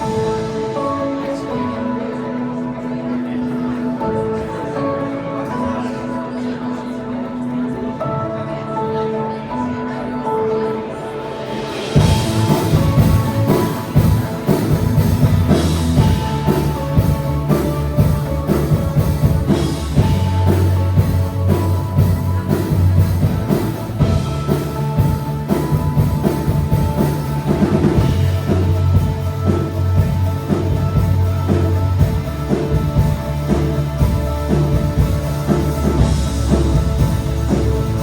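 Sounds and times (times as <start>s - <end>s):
instrumental intro music: 0.0s - 38.0s
drum kit beat: 11.7s - 38.0s
sustained low bass notes: 12.0s - 38.0s.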